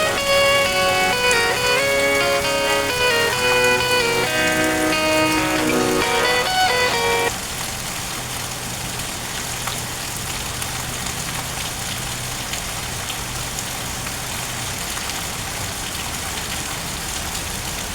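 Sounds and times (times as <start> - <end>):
plucked guitar music: 0.0 - 7.3
steady rain falling: 0.0 - 17.9.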